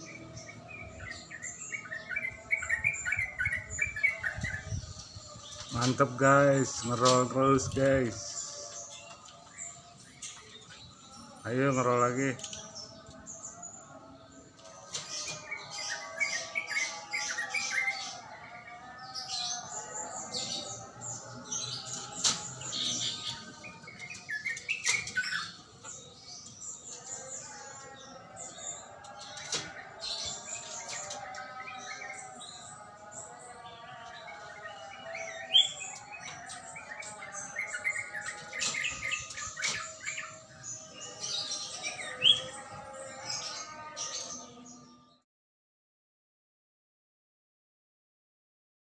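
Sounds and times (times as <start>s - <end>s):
bird chirping: 0.0s - 45.2s.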